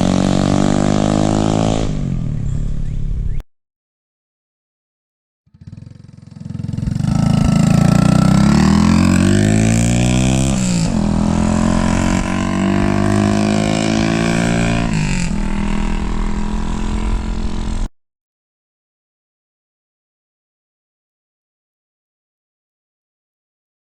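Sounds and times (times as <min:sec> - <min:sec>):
mini bike engine accelerating: 0:05.5 - 0:17.9.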